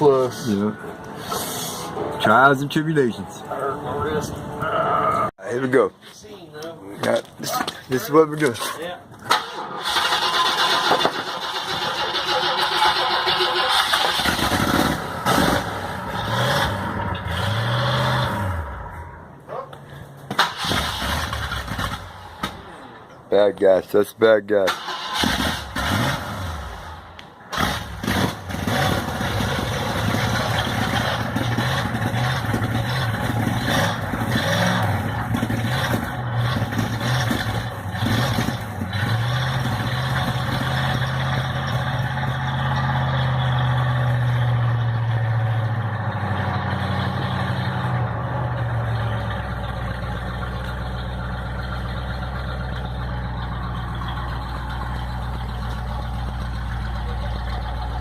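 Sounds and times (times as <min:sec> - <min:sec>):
engine revving blips: 0:09.4 - 0:19.3, 0:24.8 - 0:56.1
car engine idling: 0:26.8 - 0:58.0.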